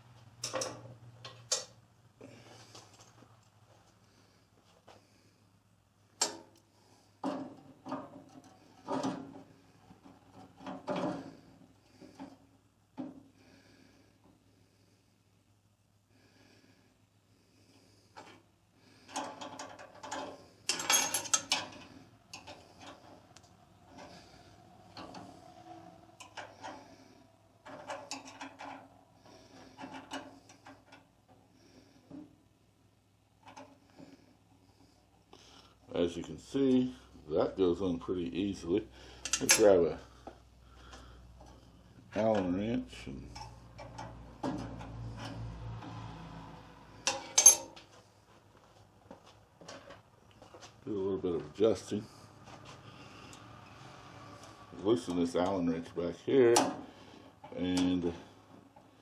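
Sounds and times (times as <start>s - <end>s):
metal parts clunking and rattling: 0.4s - 1.8s, 7.2s - 12.4s, 19.0s - 23.2s, 27.6s - 31.4s, 47.0s - 47.9s
metal parts clicking and knocking: 19.1s - 23.0s, 27.6s - 28.9s.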